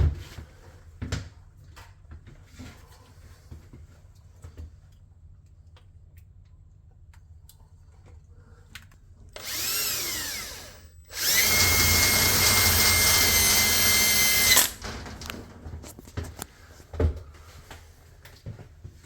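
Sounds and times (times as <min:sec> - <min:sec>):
power drill drilling wood: 0:09.4 - 0:15.4.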